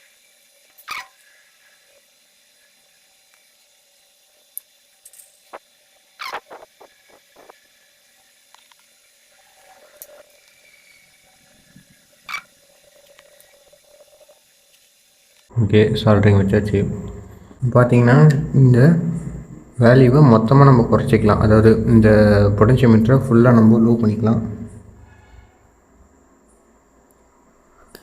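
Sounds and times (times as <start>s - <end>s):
soldering iron sizzle: 0.0s - 15.5s.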